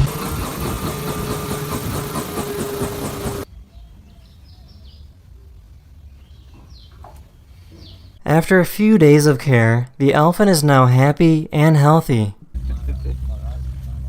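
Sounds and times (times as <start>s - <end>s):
helicopter engine and rotor: 0.0s - 3.5s.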